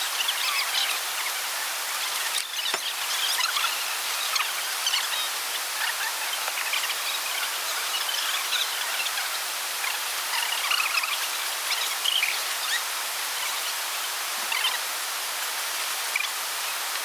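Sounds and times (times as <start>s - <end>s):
steady rainforest hiss: 0.0s - 17.0s.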